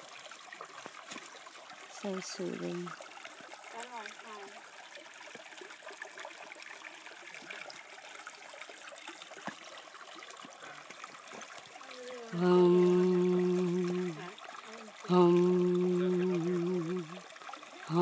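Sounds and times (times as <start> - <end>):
creek water trickling: 0.0 - 18.0
person humming a note: 11.9 - 17.2.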